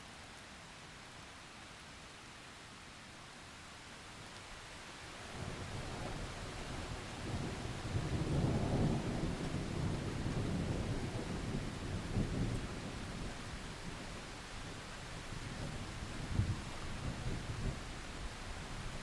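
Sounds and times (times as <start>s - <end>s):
steady rain: 0.0s - 19.0s
rolling thunder: 6.8s - 13.4s.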